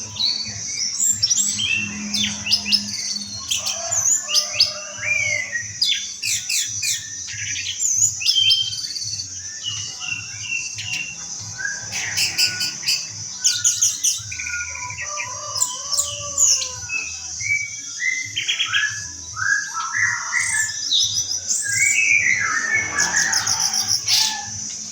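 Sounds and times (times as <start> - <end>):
high-pitched whine: 0.0 - 7.5, 19.0 - 24.9
bird singing: 0.0 - 24.9.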